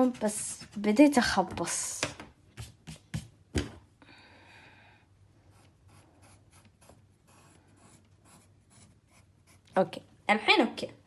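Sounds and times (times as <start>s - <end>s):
pencil taps: 1.5s - 3.8s
pencil scratching on paper: 5.5s - 9.8s.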